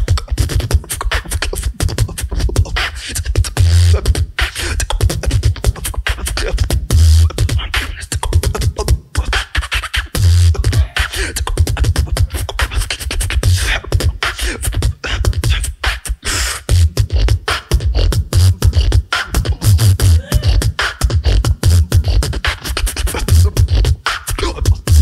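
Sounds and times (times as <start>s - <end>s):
person beatboxing: 0.0s - 25.0s.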